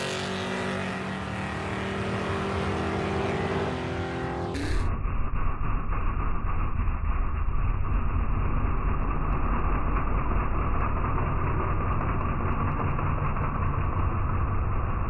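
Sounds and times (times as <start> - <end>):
muffled vehicle engine rumble: 4.5 - 15.0.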